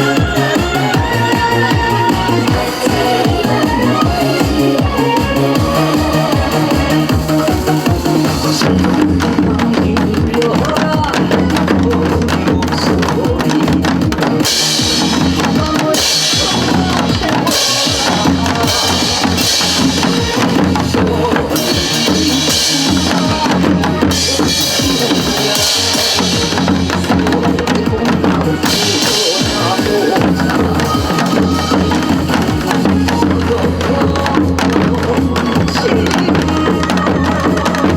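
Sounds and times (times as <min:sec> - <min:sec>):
backing track with beat and bass: 0:00.0 - 0:37.9
hourglass drums beating: 0:05.6 - 0:35.7.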